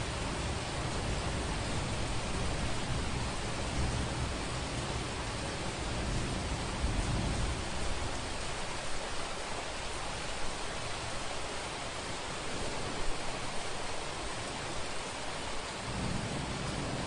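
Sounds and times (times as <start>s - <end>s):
rain hiss: 0.0s - 17.0s
distant thunder rumble: 15.8s - 17.0s.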